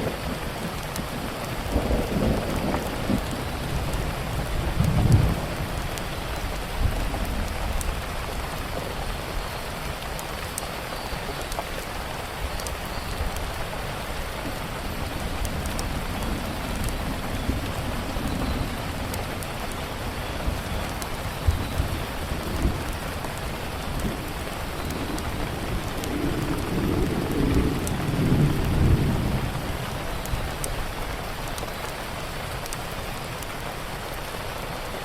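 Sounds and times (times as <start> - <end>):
low thunder rumble: 0.0 - 9.0, 14.4 - 30.9
wood fire crackling: 0.0 - 34.9
steady rain falling: 0.0 - 35.0.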